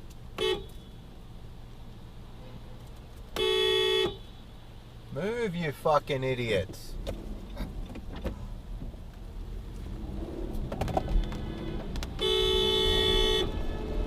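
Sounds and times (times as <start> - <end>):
car road and engine rumble: 0.0 - 14.0
car horn blast: 0.4 - 0.9, 3.4 - 4.3, 11.0 - 14.0.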